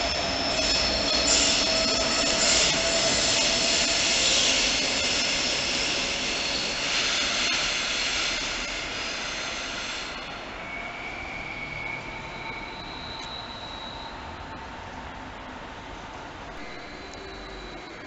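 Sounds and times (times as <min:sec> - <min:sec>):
train wheels rushing hiss: 0:00.0 - 0:14.3
thin high whistle: 0:00.0 - 0:14.4, 0:16.6 - 0:18.0.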